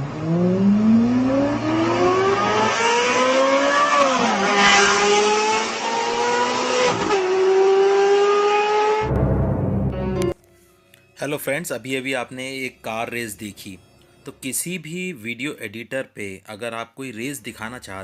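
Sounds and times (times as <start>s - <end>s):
race car engine accelerating: 0.0s - 9.7s
deep low rumble: 9.0s - 10.2s.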